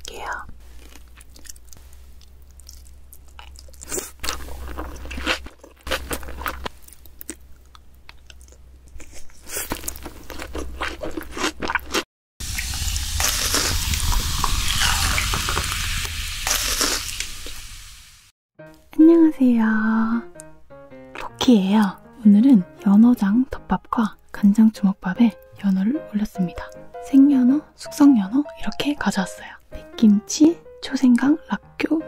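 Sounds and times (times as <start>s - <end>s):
close-miked chewing: 0.7s - 12.0s.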